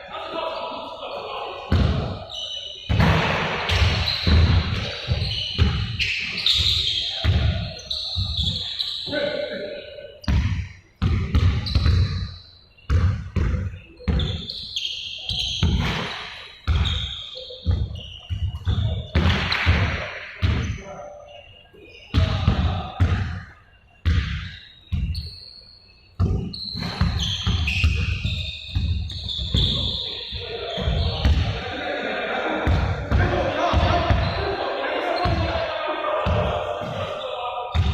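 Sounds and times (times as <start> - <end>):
basketballs bouncing on hard court: 1.7 - 2.1, 2.9 - 8.7, 10.2 - 12.3, 12.9 - 14.6, 15.3 - 20.8, 22.1 - 23.4, 24.0 - 25.2, 26.2 - 30.1, 30.7 - 31.6, 32.6 - 34.4, 36.2 - 37.1
short high squeaks: 3.7 - 9.4, 13.8 - 19.0, 24.5 - 31.2.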